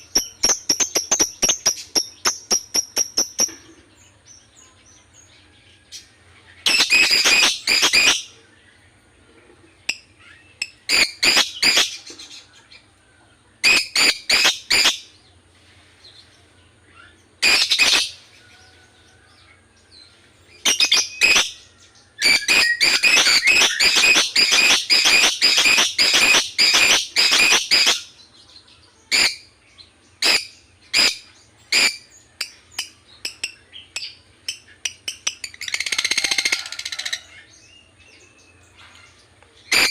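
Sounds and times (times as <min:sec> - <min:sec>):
lovebird chattering: 0:00.0 - 0:03.6, 0:06.7 - 0:08.4, 0:09.9 - 0:12.0, 0:17.4 - 0:18.2, 0:22.2 - 0:28.1.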